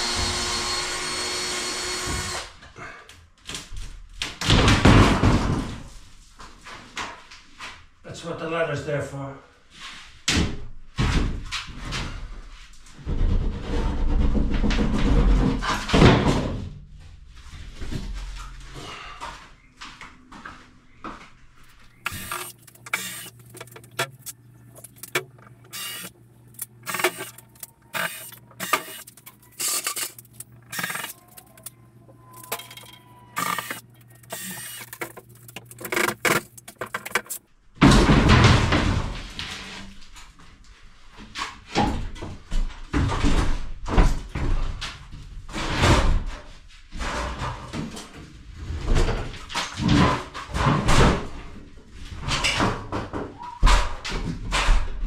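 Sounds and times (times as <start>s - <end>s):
plasterboard scraping rumble: 12.9s - 16.6s
knocks and clatters: 13.0s - 16.8s, 32.4s - 39.4s.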